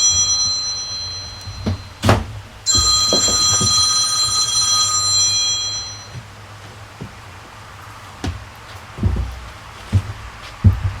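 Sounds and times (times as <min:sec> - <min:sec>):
electronic ringing tone: 0:00.0 - 0:02.0, 0:02.7 - 0:06.2
short knocks: 0:01.2 - 0:04.4.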